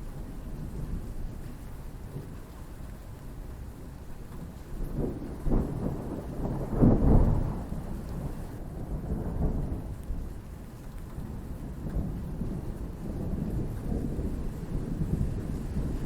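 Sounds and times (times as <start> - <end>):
steady rain: 0.0 - 16.0
thunder rumbling: 4.8 - 10.4, 11.2 - 16.0.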